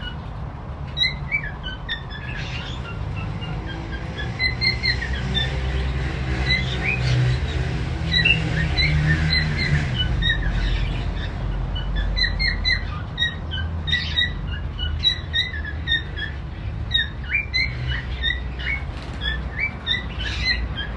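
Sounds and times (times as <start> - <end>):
birds chirping and squawking: 0.0 - 20.9.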